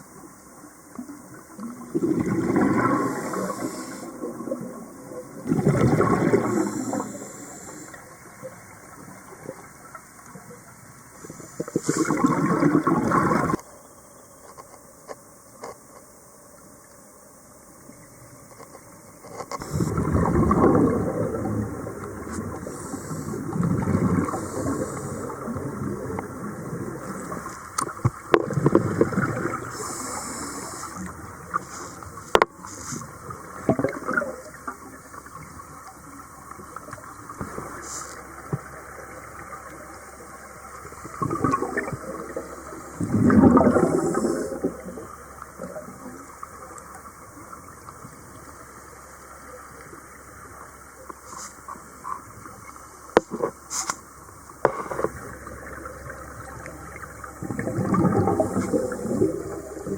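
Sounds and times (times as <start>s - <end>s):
underwater bubbles gurgling: 0.0s - 14.0s, 17.5s - 59.9s.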